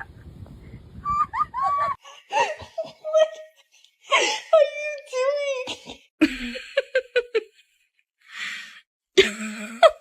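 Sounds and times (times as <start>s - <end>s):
person laughing: 1.0s - 3.6s, 5.6s - 7.6s.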